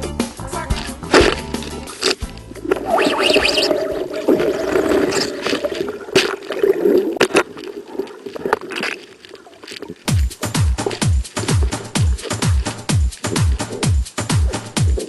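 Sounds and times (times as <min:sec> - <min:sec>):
water gurgling and splashing: 0:01.1 - 0:15.0
electronic dance beat: 0:10.1 - 0:15.0.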